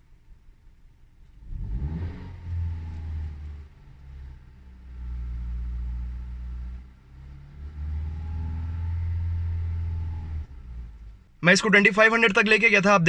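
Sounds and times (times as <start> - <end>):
car engine revving: 1.2 - 11.4.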